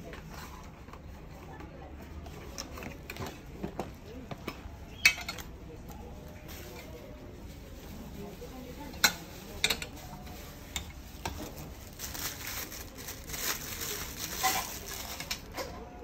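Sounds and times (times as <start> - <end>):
packaging rustling: 11.4 - 15.6.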